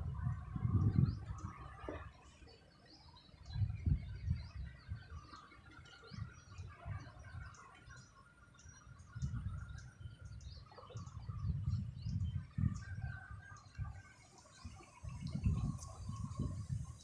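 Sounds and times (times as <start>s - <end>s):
wind gusts on microphone: 0.0s - 2.3s, 3.4s - 7.6s, 8.9s - 17.0s
faint bird chirps: 0.2s - 17.0s.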